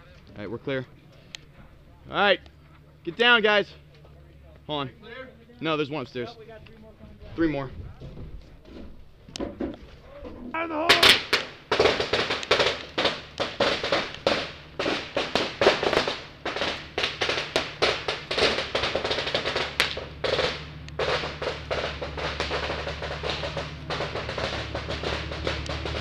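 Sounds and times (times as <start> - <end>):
fast hard-hit drums: 10.8 - 26.0.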